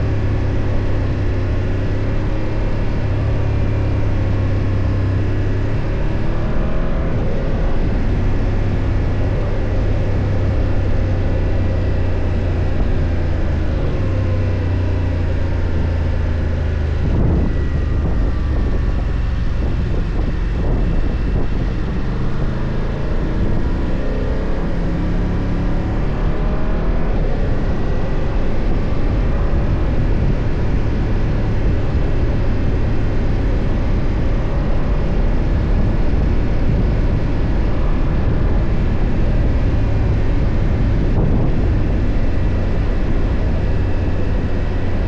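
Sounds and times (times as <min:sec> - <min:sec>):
motorcycle engine running: 0:00.0 - 0:45.0.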